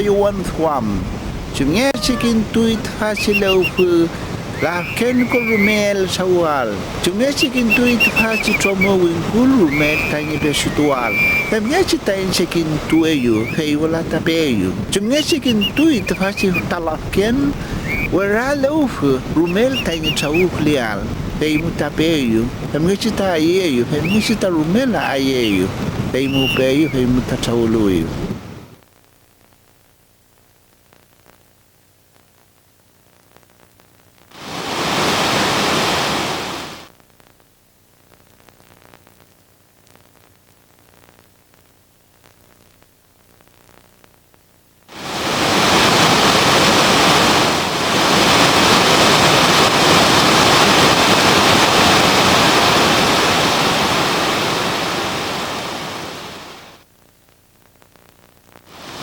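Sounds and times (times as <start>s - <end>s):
rushing water: 0.0s - 28.4s, 34.4s - 36.9s, 44.9s - 56.8s, 58.7s - 59.0s.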